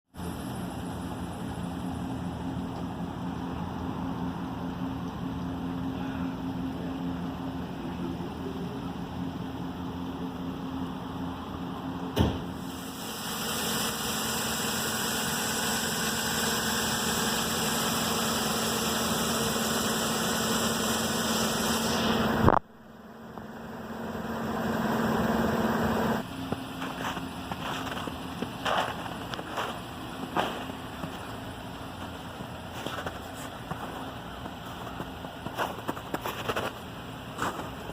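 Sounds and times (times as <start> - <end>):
truck engine idling: 0.1 - 37.9
hiss: 12.6 - 22.4.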